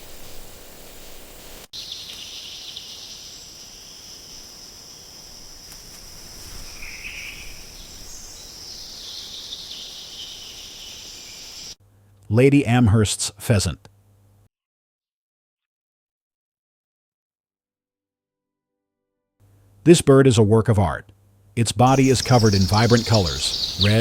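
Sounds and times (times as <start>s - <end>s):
high-pitched insect chorus: 0.0s - 11.8s, 21.9s - 24.0s
short insect call: 0.0s - 11.8s, 21.9s - 24.0s.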